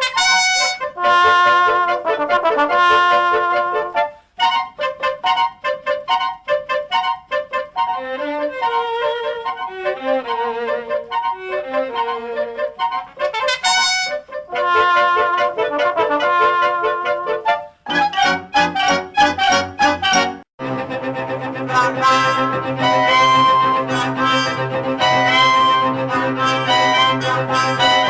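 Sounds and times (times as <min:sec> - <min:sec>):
jazz band playing: 0:00.0 - 0:08.0, 0:11.1 - 0:20.5, 0:21.4 - 0:28.0.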